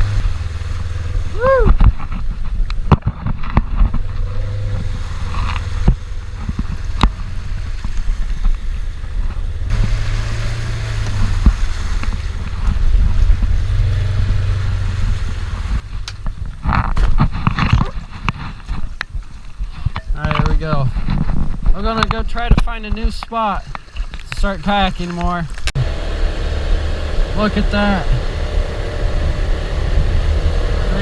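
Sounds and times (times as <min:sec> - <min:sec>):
wind buffeting microphone: 0:10.8 - 0:23.8.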